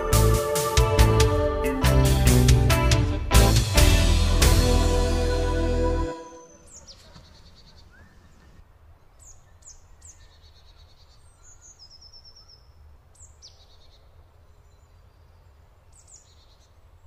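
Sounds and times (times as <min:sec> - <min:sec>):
small birds whistling and trilling: 0:06.4 - 0:08.6.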